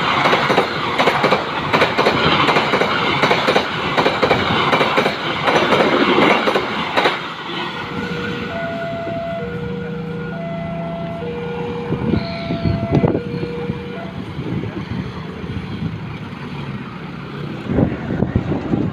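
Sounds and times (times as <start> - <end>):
train wheels clattering: 0.0 - 7.7
two-note high-low tone: 8.4 - 14.2.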